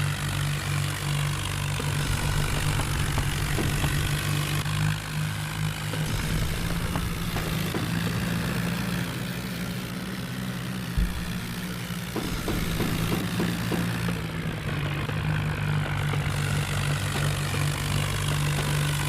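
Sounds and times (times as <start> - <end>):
tractor engine running: 0.0 - 19.0
low thump: 11.0 - 13.5.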